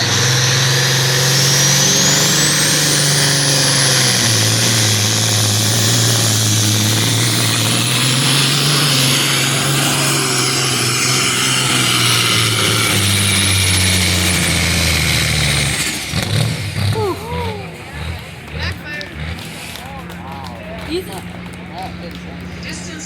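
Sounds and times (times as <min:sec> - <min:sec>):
turbocharger whistle: 0:00.0 - 0:17.6
truck diesel engine pulling hard: 0:00.0 - 0:23.0.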